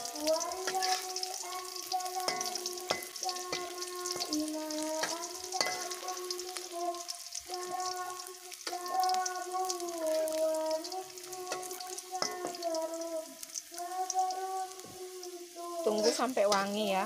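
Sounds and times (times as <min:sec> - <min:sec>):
garlic sizzling in hot oil: 0:00.0 - 0:17.0
metal spatula scraping a wok: 0:00.6 - 0:01.2.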